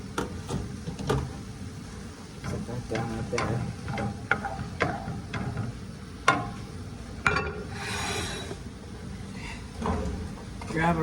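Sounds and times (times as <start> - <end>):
cookware clattering: 7.2 - 7.7.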